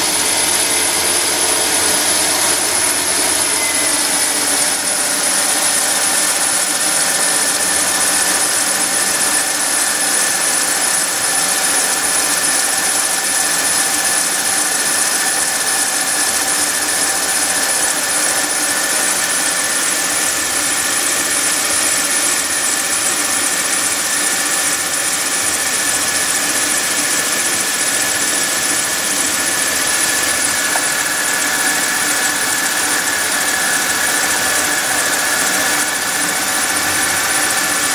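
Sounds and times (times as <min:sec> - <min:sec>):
high-pitched engine squeal: 0:00.0 - 0:10.9.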